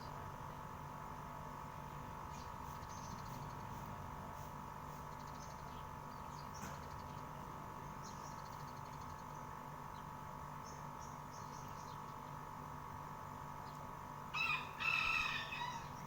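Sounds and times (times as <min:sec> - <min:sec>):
small birds chirping: 0:07.8 - 0:12.4.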